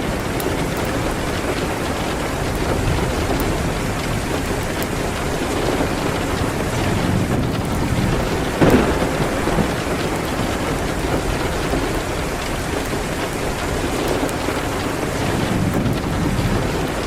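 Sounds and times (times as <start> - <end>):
rain on a window: 0.0 - 17.0
sudden loud crack: 8.6 - 10.2.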